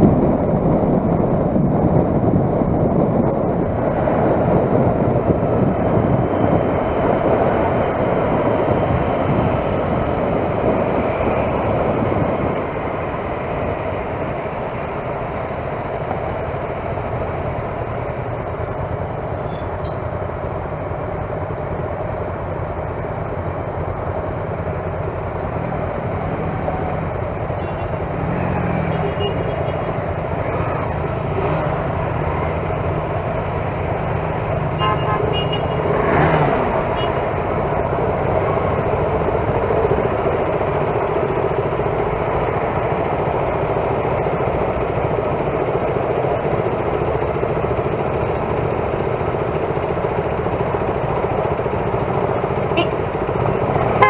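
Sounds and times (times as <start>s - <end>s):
wind and road noise: 0.0s - 54.0s
motorcycle engine running: 0.1s - 54.0s
vehicle passing: 25.4s - 37.8s.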